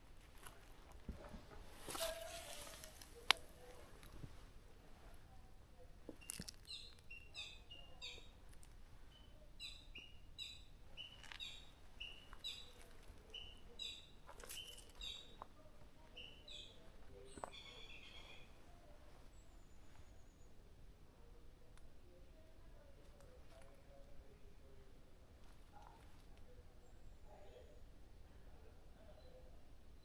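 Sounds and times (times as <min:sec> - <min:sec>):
songbird calling: 0:06.2 - 0:08.4, 0:09.1 - 0:15.4, 0:16.1 - 0:18.6.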